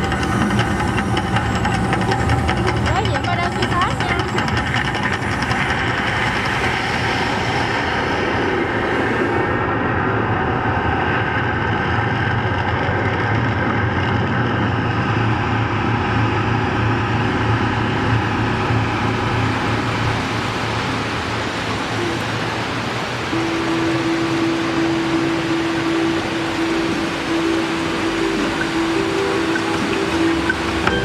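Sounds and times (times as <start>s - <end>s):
deep rumble: 0.0s - 31.0s
hissing noise: 20.1s - 31.0s.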